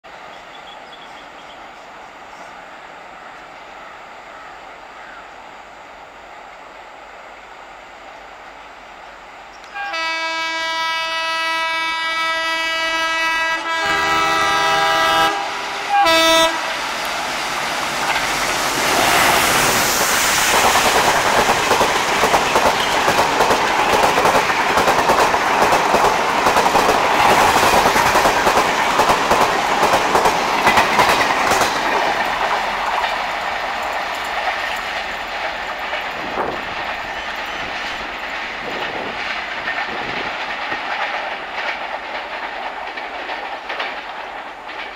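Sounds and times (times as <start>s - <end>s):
train coaches rushing past: 5.9s - 44.9s
locomotive horn blasts: 9.7s - 16.8s
wheels clattering over rail joints: 19.9s - 44.9s.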